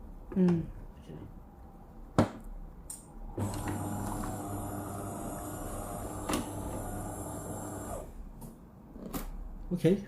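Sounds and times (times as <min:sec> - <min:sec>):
coffee machine humming: 0:03.3 - 0:08.2.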